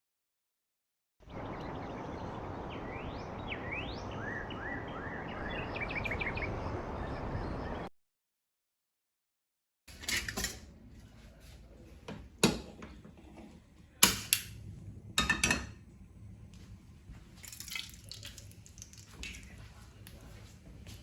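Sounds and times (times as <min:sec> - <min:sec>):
dishes and utensils clinking: 0:09.9 - 0:10.7, 0:15.2 - 0:15.8.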